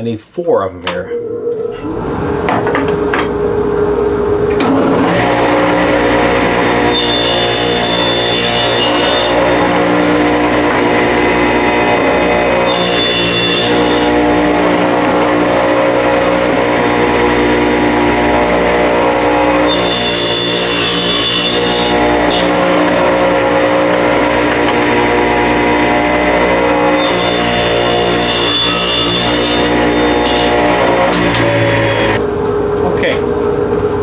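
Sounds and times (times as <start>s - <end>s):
electric saw running: 1.8s - 32.2s
saw blade cutting wood: 5.0s - 32.2s.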